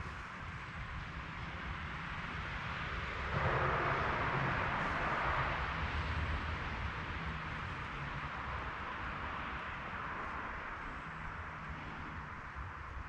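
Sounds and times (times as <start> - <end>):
low rumble: 3.0 - 8.6.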